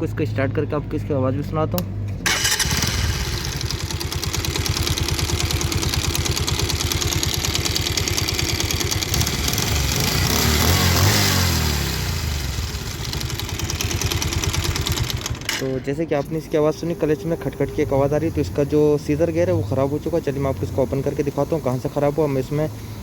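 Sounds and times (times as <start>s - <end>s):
engine revving: 1.8s - 15.5s
motorcycle engine running: 2.2s - 15.6s
engine knocking: 2.3s - 11.4s, 12.1s - 15.5s.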